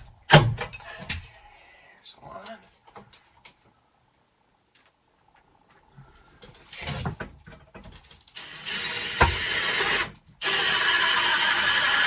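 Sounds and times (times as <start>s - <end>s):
cordless drill driving screws: 8.4s - 12.0s.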